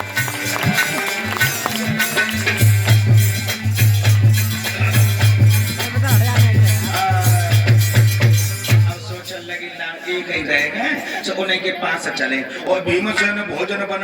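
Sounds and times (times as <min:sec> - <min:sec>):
rapid drum strokes: 0:00.0 - 0:09.4
rattling percussion: 0:00.0 - 0:09.7.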